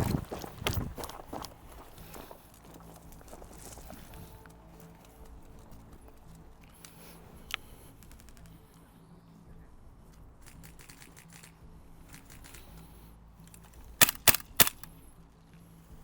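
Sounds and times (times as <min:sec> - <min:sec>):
faint clicks: 0:04.4 - 0:08.9
airsoft gun shots: 0:14.0 - 0:14.9.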